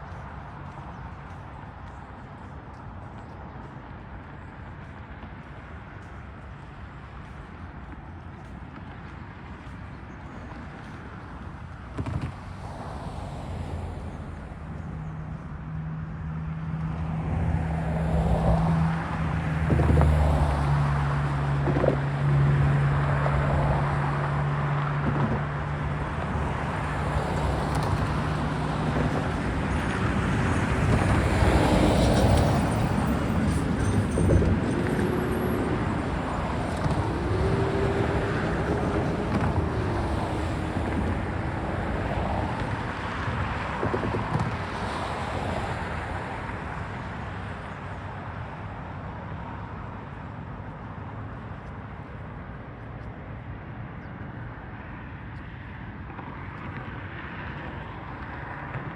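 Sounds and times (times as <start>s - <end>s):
diesel locomotive engine hum: 13.6s - 54.7s
wheel squeals: 31.8s - 39.9s.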